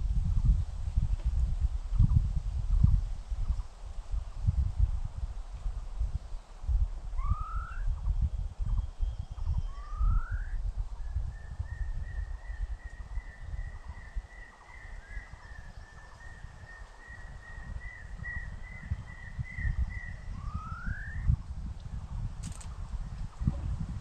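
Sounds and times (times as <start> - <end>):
bird whistling call: 7.2 - 8.0, 8.7 - 21.3.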